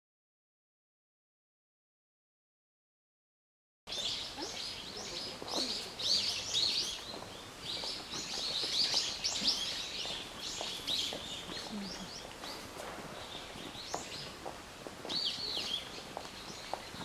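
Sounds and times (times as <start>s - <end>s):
birds chirping: 3.9s - 17.0s.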